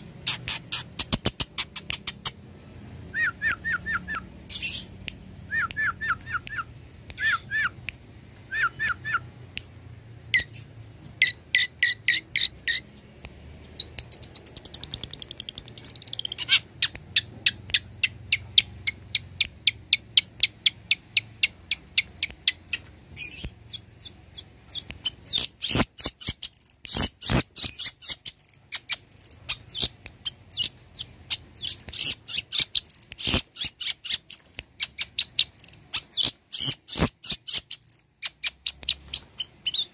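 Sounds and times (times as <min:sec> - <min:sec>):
bird singing with rattles: 0:00.0 - 0:02.4, 0:10.3 - 0:12.9, 0:13.7 - 0:39.9.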